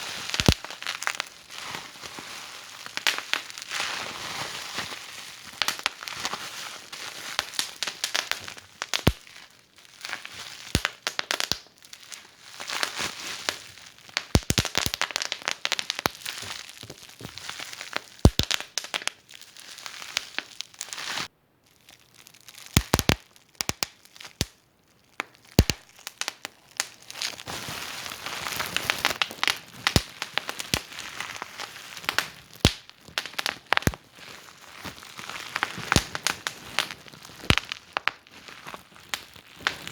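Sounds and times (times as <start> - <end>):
fire pops and snaps: 0.0 - 1.3, 2.8 - 3.6, 5.5 - 6.1, 7.3 - 19.2, 22.6 - 24.6, 25.2 - 27.5, 28.2 - 34.2, 34.8 - 39.9
wood fire crackling: 0.0 - 3.8, 4.9 - 21.3, 21.9 - 39.9.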